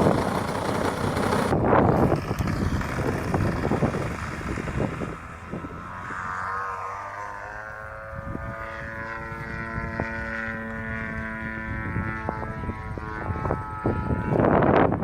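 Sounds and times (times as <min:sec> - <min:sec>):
wind gusts on microphone: 0:00.0 - 0:06.4, 0:08.0 - 0:15.0
model plane engine in flight: 0:00.0 - 0:15.0.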